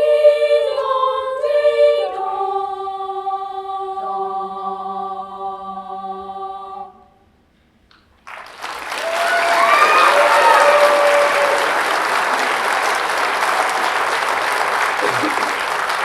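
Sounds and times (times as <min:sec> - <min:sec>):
choir holding a chord: 0:00.0 - 0:07.1
audience applause: 0:08.2 - 0:16.0
people cheering: 0:08.3 - 0:16.0.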